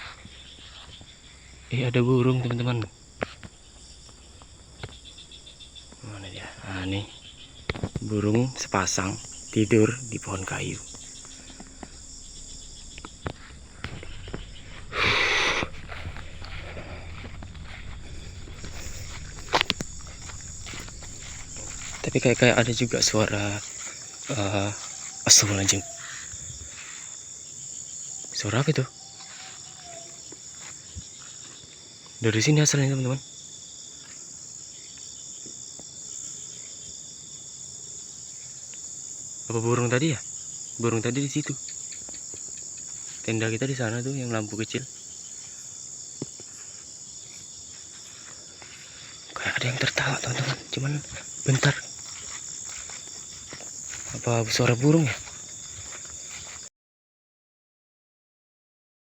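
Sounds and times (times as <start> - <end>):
crickets chirring: 0.0 - 56.7
faint ticks: 2.4 - 24.4
loud rustle: 3.0 - 25.2.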